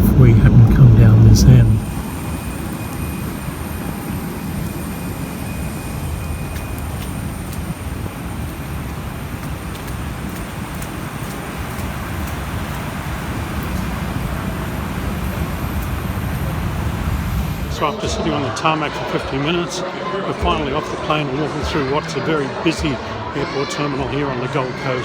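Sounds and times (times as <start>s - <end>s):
jet airliner cabin rumble: 0.0s - 17.9s.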